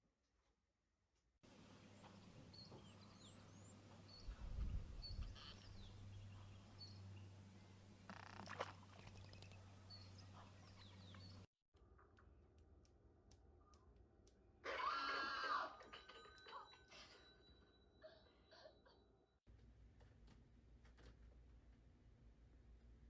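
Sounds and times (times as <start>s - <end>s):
small birds chirping: 1.5s - 11.5s
steady low hum: 1.5s - 14.6s.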